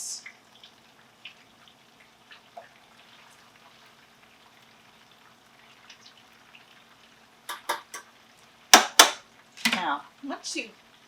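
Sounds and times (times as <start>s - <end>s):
gravy simmering and popping: 0.3s - 9.8s
sharp knocks: 7.5s - 8.0s, 8.8s - 9.2s.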